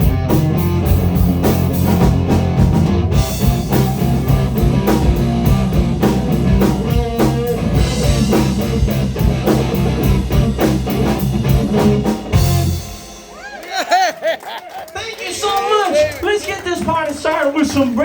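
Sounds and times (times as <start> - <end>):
electric guitar: 0.0 - 14.2
drum kit beat: 0.0 - 14.6
blues-rock band playing: 0.0 - 15.4.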